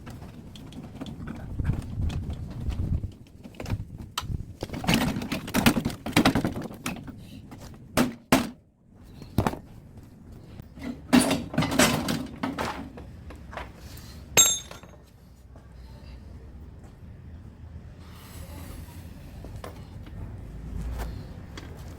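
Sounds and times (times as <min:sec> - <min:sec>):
metal knocks and clanks: 0:10.8 - 0:13.0
ringing metal clang: 0:14.4 - 0:15.0.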